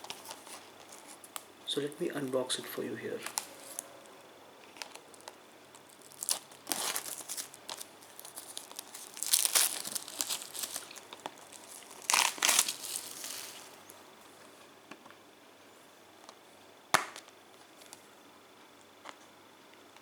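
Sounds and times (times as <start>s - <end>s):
plastic wrapping tearing and crumpling: 0.0s - 1.3s, 3.2s - 3.9s, 4.6s - 14.0s.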